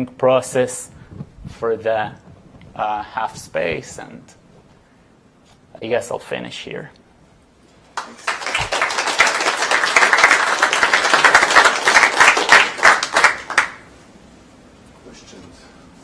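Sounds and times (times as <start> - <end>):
audience applauding: 7.9 - 13.9.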